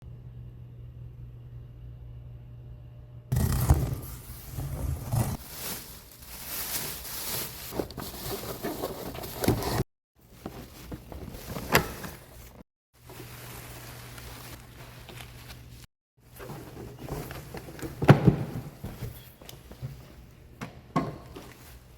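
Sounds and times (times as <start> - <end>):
cardboard tearing: 3.3 - 9.8
cardboard rustling and scraping: 3.3 - 19.4.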